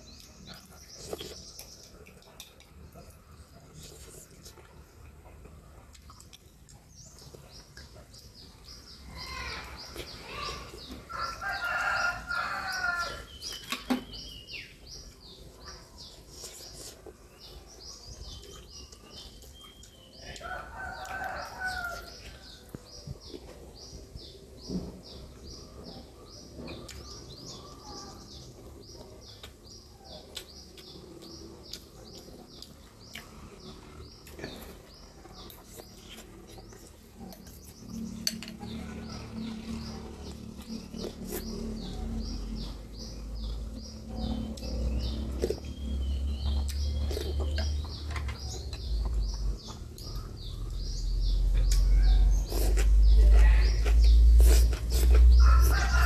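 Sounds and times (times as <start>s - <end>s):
small birds chirping: 0.0s - 56.0s
low hum and rumble: 36.3s - 56.0s
person eating soup: 46.6s - 47.8s, 52.4s - 55.9s.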